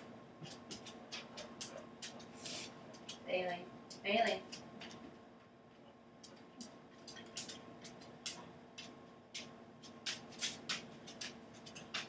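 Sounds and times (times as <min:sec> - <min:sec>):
steady low hum: 0:00.0 - 0:12.0
light clicks and taps: 0:02.9 - 0:12.0.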